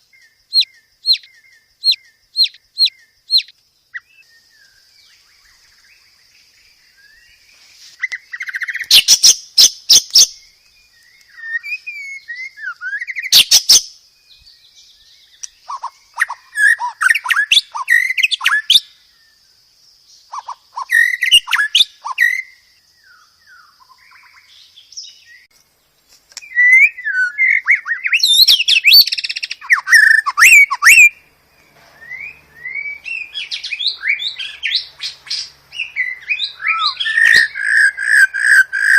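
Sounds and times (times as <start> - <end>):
bird singing whistles and warbles: 0.0 - 19.4, 20.2 - 25.5, 26.4 - 38.9
sharp bird clicks: 0.5 - 3.6, 8.0 - 11.6, 15.3 - 18.8, 26.1 - 26.8, 36.8 - 38.9.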